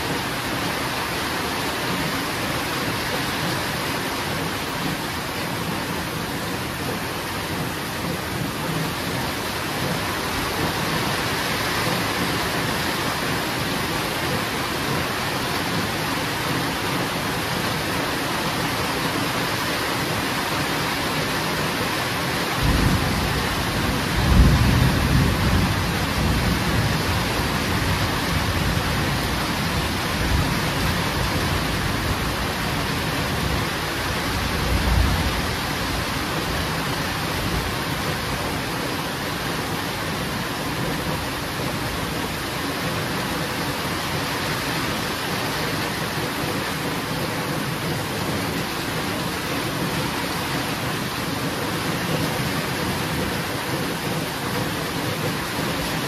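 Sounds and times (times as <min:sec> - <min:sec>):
heavy rain falling: 0:00.0 - 0:56.0
rolling thunder: 0:22.6 - 0:33.6.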